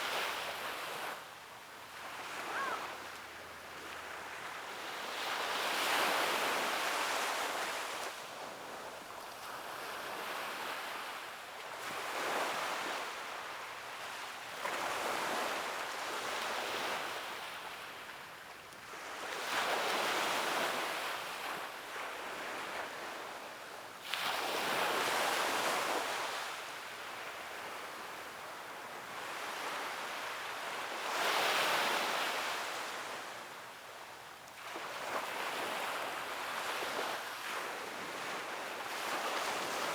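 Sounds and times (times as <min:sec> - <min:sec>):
sea waves breaking on beach: 0:02.2 - 0:03.1.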